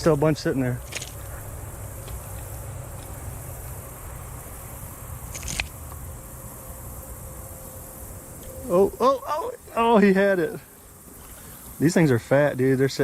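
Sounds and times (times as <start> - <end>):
insects chirring: 0.0 - 13.0
sharp click: 5.3 - 6.0.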